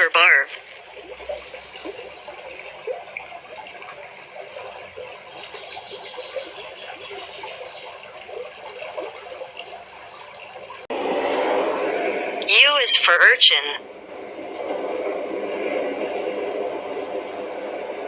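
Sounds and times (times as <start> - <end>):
aquarium water bubbling: 0.0 - 18.0.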